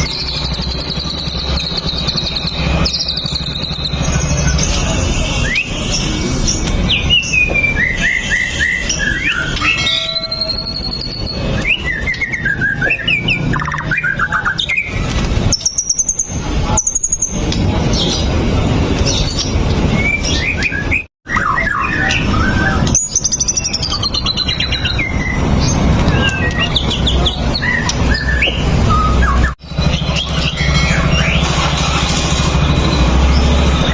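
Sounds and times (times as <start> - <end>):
bird singing whistled song: 0.0 - 4.6, 6.6 - 17.4, 20.0 - 31.4.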